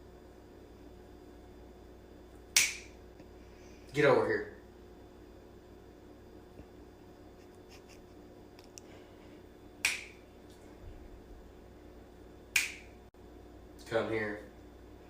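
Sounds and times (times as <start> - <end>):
finger snap: 2.5 - 3.0, 9.8 - 10.2, 12.5 - 13.0.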